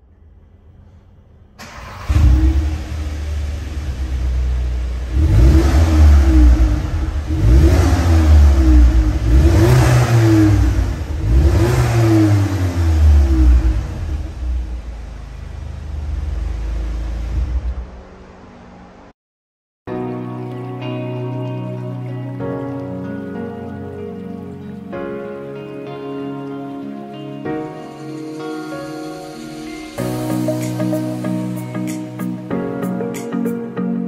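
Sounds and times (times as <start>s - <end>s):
car engine starting and revving: 0.7s - 19.1s.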